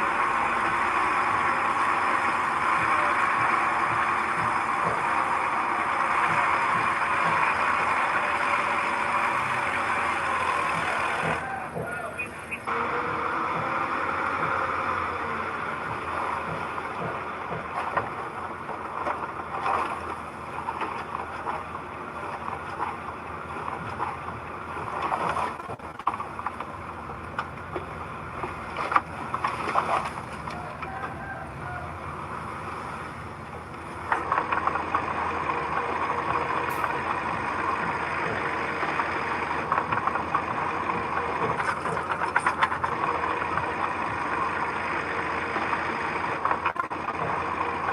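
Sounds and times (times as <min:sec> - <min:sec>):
heavy machinery diesel engine: 0:00.0 - 0:47.9
knocks and clanks: 0:02.7 - 0:08.4, 0:10.5 - 0:12.2, 0:15.7 - 0:23.0, 0:33.6 - 0:44.5.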